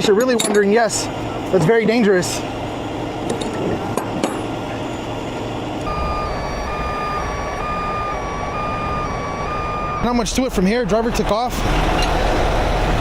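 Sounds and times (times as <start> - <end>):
truck engine running: 0.0 - 13.0
truck reversing alarm: 4.5 - 13.0.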